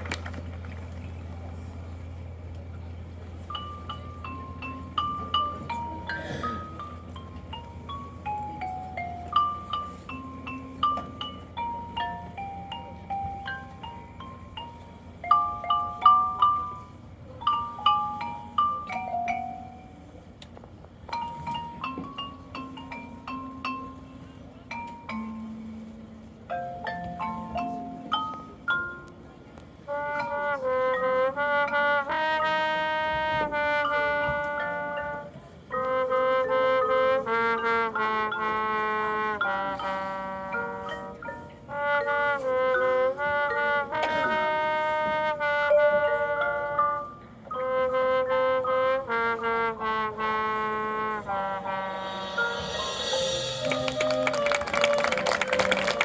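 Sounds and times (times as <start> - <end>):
brass band playing sustained chords: 29.6 - 56.0
rising wash of noise: 51.8 - 55.0.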